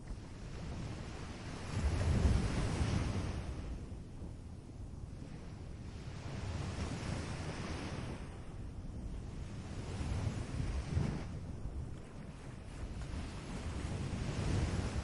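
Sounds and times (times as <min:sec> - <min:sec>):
ocean surf washing onto beach: 0:09.3 - 0:15.0.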